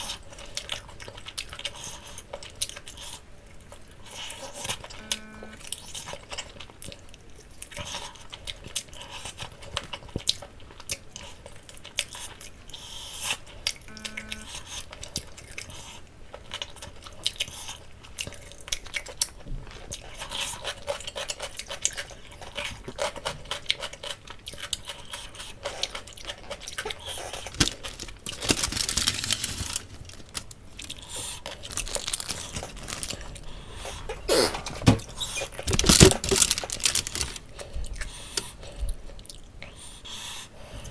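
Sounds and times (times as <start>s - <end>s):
chewing with wet clicks: 0.0s - 28.2s, 30.4s - 33.4s, 36.9s - 40.9s
short tone: 5.0s - 5.6s, 13.9s - 14.6s
meat tearing and crunching: 16.4s - 33.6s, 35.3s - 38.5s.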